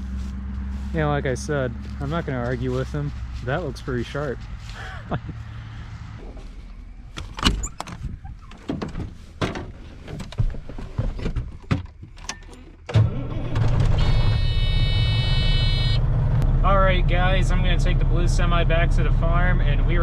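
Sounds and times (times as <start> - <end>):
diesel engine starting and idling: 0.0 - 7.8, 12.4 - 20.0
door and keys clunking: 7.2 - 10.4.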